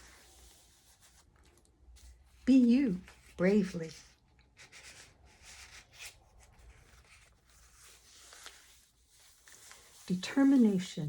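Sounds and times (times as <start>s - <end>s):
paper pages rustling: 0.0s - 10.9s.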